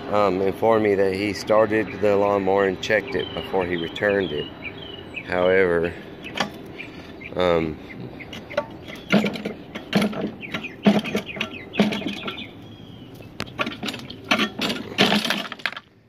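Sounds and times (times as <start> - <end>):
lawn mower pull-starter clatter: 8.3 - 12.5, 13.3 - 15.9.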